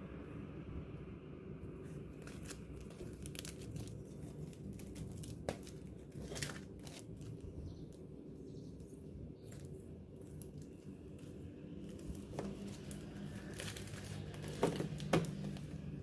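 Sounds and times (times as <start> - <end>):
packaging crinkling: 2.2 - 7.4, 11.8 - 15.8.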